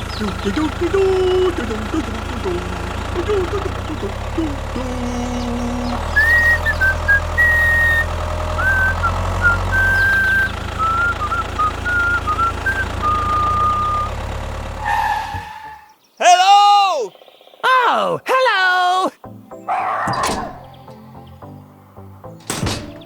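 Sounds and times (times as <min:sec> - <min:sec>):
tractor engine humming: 0:00.0 - 0:16.1, 0:19.3 - 0:23.0
person whistling a tune: 0:06.1 - 0:14.2.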